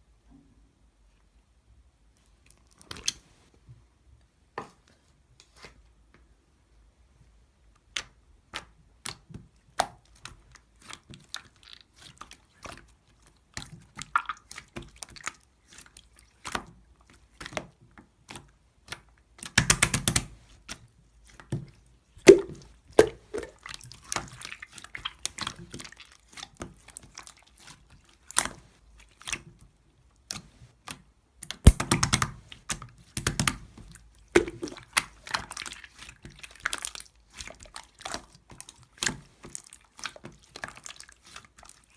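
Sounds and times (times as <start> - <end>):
slime squishing and popping: 22.3 - 25.5, 31.7 - 32.4, 34.4 - 37.1.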